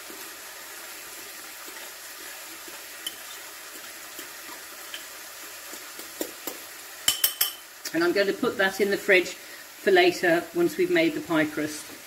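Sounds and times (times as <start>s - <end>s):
meat and onion frying in a pan: 0.0s - 12.0s
fork clinking against ceramic bowl: 7.1s - 7.6s.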